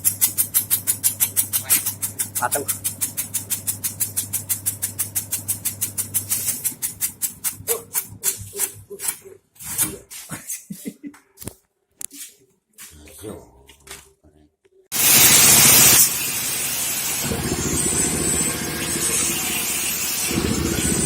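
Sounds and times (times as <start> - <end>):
shredding machine cutter chopping: 0.0 - 8.7, 15.0 - 21.0
motor hum: 15.0 - 21.0.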